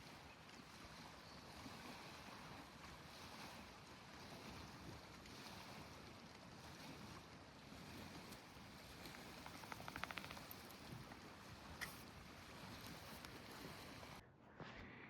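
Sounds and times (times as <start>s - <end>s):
soft outdoor hiss: 8.3s - 14.2s.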